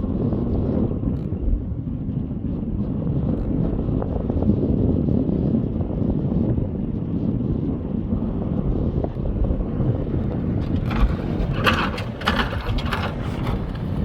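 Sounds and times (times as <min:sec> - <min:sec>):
wind on the microphone: 0:00.0 - 0:14.0
engine and road rumble: 0:09.1 - 0:14.0
brief clatters: 0:10.6 - 0:14.0.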